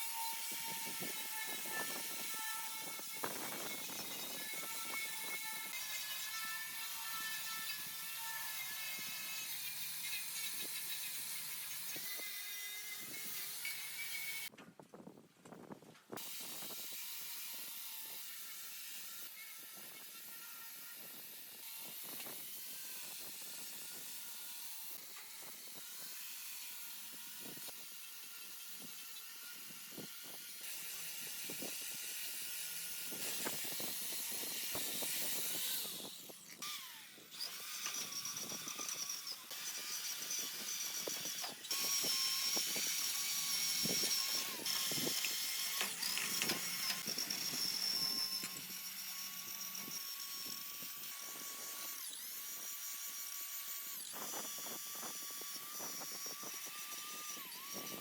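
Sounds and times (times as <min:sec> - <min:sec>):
power tool whining: 0:00.0 - 0:14.5, 0:16.2 - 0:58.0.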